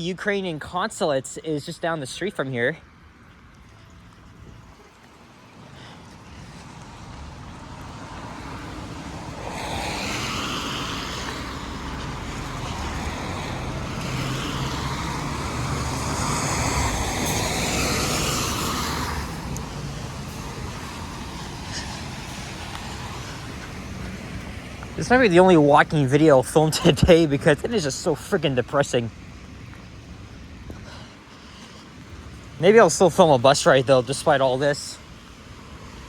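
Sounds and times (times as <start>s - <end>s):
low engine hum: 2.9s - 32.6s
tyres hissing on wet road: 5.5s - 36.0s.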